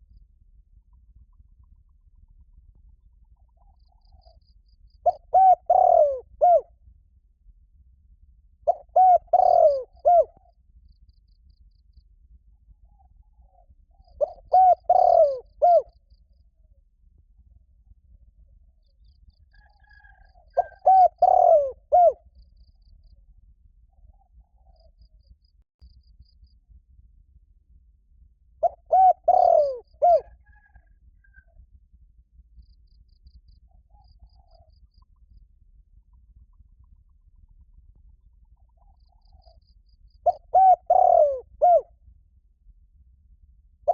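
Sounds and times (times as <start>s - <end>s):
dove cooing: 5.0s - 6.7s, 8.7s - 10.4s, 14.2s - 15.9s, 19.6s - 22.2s, 28.6s - 30.9s, 40.2s - 41.9s.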